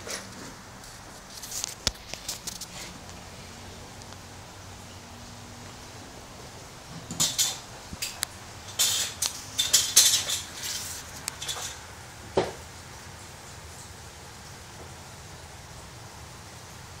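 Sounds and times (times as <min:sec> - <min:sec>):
metallic clinks and rattles: 0:06.9 - 0:11.8.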